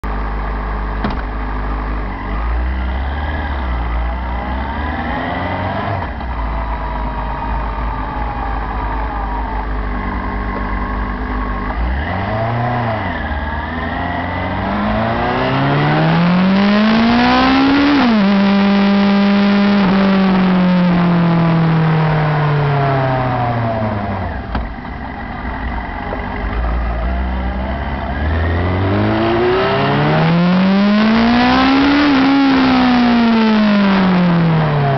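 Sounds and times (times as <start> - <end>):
motorcycle engine revving: 0.8 - 34.9.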